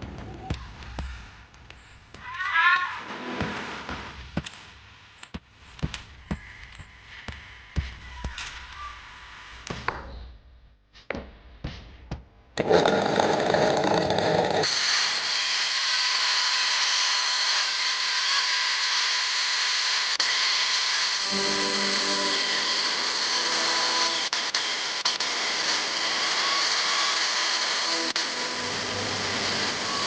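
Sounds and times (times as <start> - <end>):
electric power tool running: 12.8 - 30.0.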